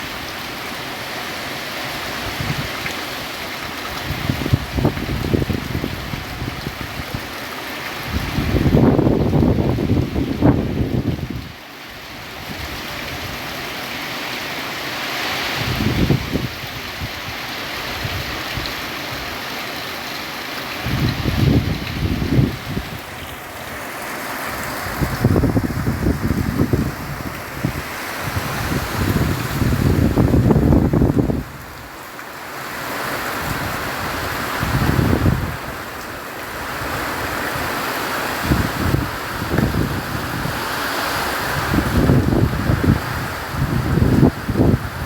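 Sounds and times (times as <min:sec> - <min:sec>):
heavy rain hissing: 0:00.0 - 0:45.0
wind gusts buffeting microphone: 0:02.2 - 0:02.8, 0:04.0 - 0:07.3, 0:08.0 - 0:11.6, 0:15.6 - 0:19.3, 0:20.8 - 0:23.9, 0:24.5 - 0:31.8, 0:33.4 - 0:35.9, 0:38.4 - 0:45.0.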